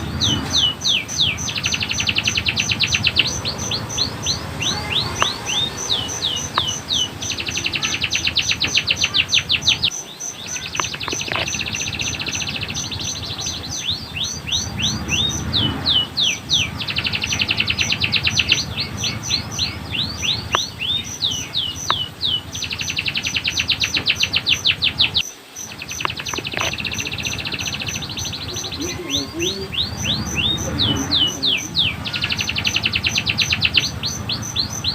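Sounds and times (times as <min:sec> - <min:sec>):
canary singing: 0:00.0 - 0:34.9.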